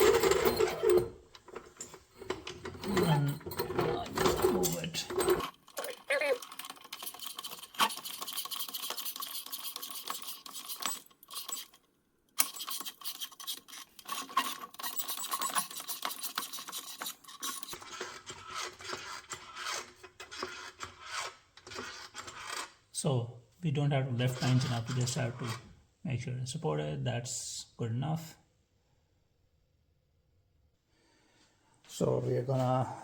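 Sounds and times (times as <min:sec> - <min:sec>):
floor jack scraping and clicking: 0:00.0 - 0:05.6.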